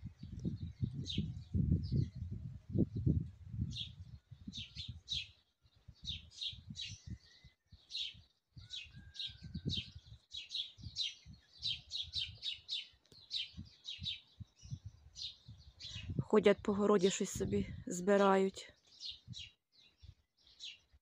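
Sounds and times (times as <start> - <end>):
low rumbling on microphone: 0.0 - 5.2, 13.5 - 16.7
songbirds chirping: 0.0 - 21.0.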